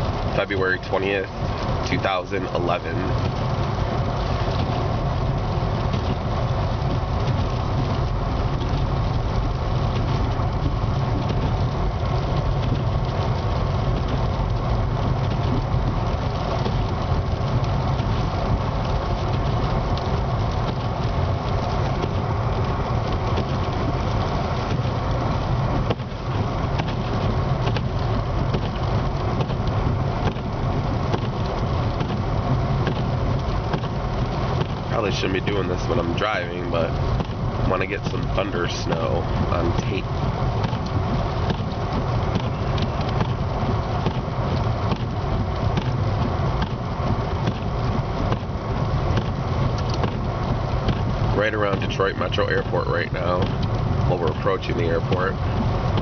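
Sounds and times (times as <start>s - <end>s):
car engine and tyres drone: 0.0s - 56.0s.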